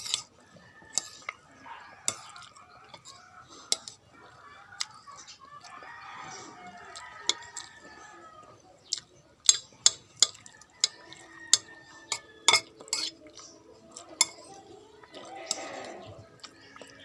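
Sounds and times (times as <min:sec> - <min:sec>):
spoon clinking against a bowl: 0:00.0 - 0:01.4, 0:02.0 - 0:04.0, 0:09.5 - 0:17.0.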